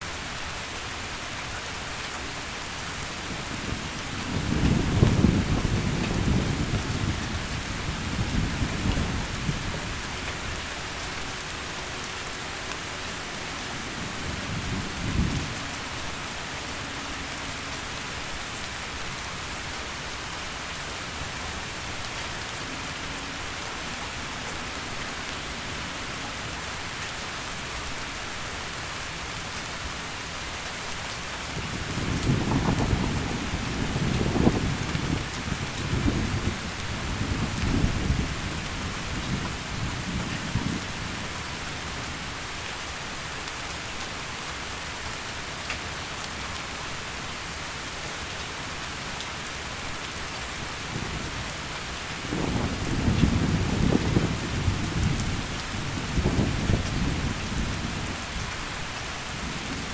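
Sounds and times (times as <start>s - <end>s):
heavy rain falling: 0.0s - 59.9s
rolling thunder: 4.2s - 10.0s, 31.8s - 40.9s, 52.2s - 58.2s.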